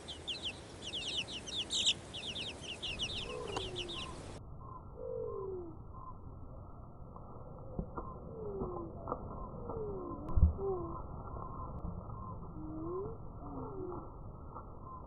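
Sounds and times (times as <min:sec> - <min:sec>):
birds chirping: 0:00.0 - 0:06.6
low drawn-out bird calls: 0:00.0 - 0:15.0.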